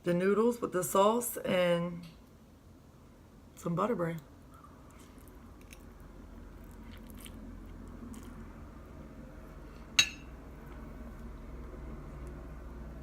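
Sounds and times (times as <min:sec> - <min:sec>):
person biting and chewing food: 0:04.9 - 0:08.5.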